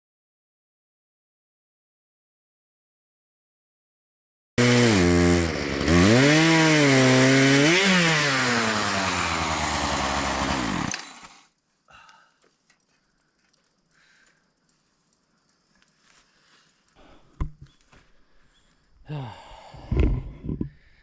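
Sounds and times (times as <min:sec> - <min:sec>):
chainsaw cutting under load: 0:04.6 - 0:11.5.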